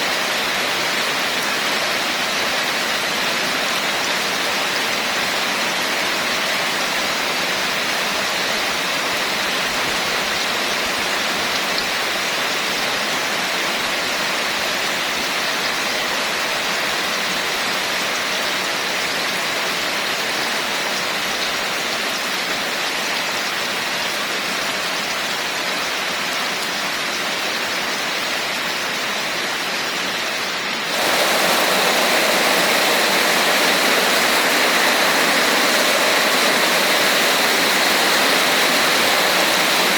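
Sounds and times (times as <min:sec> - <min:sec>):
heavy rain: 0:00.0 - 0:39.9
bright rushing noise: 0:30.8 - 0:39.9.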